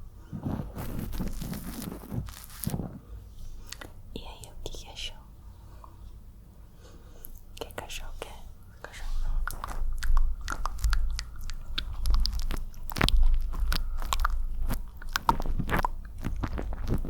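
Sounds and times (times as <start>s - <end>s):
wet mouth sounds: 0.4s - 3.0s, 3.6s - 4.0s, 9.0s - 17.0s.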